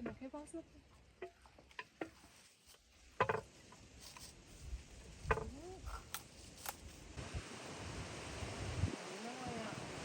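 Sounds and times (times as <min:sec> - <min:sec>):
wind buffeting microphone: 0:07.2 - 0:10.0.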